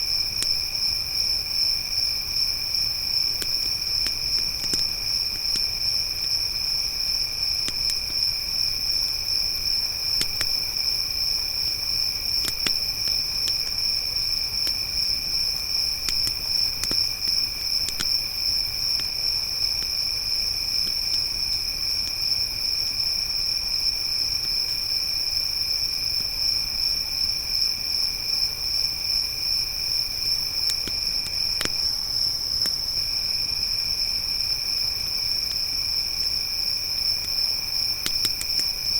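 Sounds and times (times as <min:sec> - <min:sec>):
campfire popping and crackling: 0:00.0 - 0:01.2, 0:02.7 - 0:06.4, 0:07.4 - 0:22.4, 0:30.5 - 0:32.9, 0:37.2 - 0:38.9
crickets chirring: 0:00.0 - 0:38.9.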